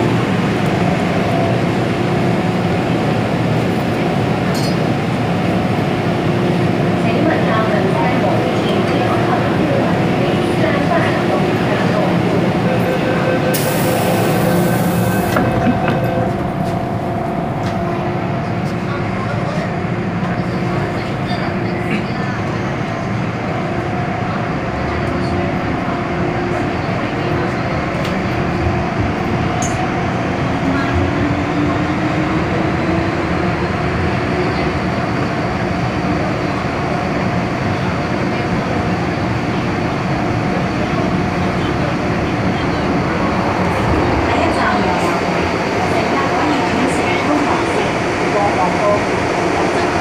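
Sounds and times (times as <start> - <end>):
wheels rumbling on track: 0.0 - 50.0
train traction motor whine: 11.4 - 21.2.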